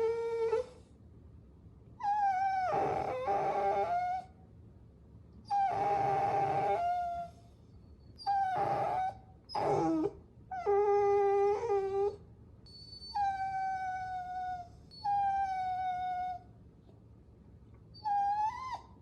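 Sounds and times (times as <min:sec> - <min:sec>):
puppy whining: 0:00.0 - 0:00.8, 0:02.0 - 0:04.4, 0:05.5 - 0:07.5, 0:08.1 - 0:16.5, 0:17.9 - 0:19.0.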